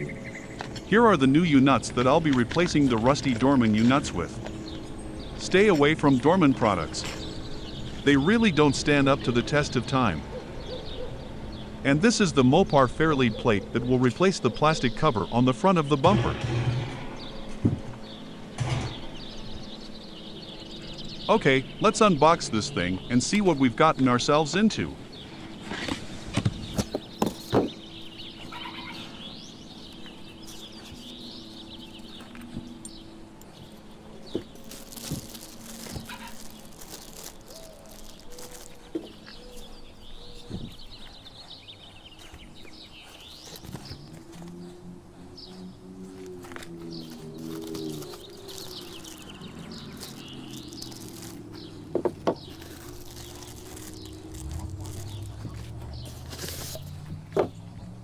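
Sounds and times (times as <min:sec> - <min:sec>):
birds chirping: 0:00.0 - 0:58.0
sharp knocks and rustles: 0:16.2 - 0:19.2, 0:25.6 - 0:27.8
plastic packaging crinkling: 0:29.9 - 0:32.2, 0:33.5 - 0:39.8, 0:46.4 - 0:57.1
cardboard box handled: 0:47.4 - 0:57.5.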